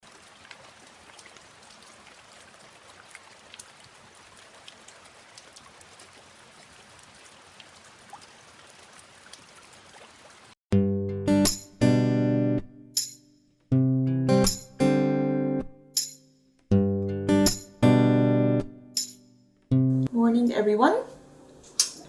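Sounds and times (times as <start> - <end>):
light rain patter: 0.0 - 10.6.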